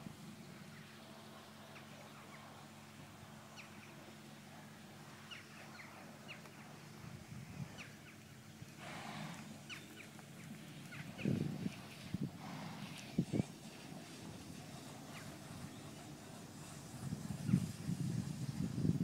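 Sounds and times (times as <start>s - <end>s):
small birds chirping: 7.7s - 12.2s
horse hooves on sand: 8.6s - 19.0s.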